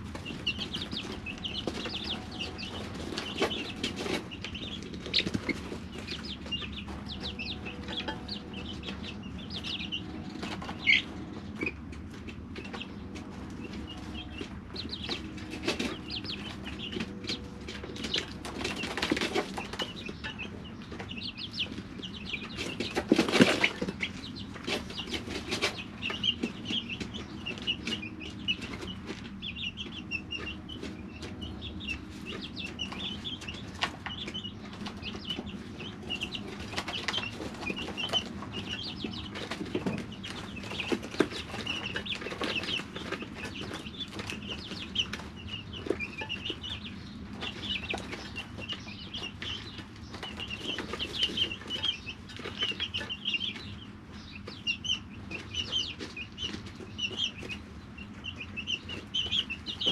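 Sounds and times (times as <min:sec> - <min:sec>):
chicks peeping: 0:00.0 - 0:59.9
clicks of pecking and scratching: 0:00.0 - 0:59.9
rustling and wing flapping: 0:10.3 - 0:20.2.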